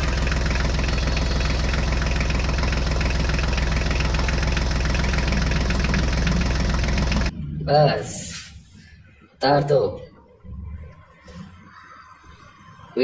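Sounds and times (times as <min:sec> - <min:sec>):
toy tractor humming: 0:00.0 - 0:07.3.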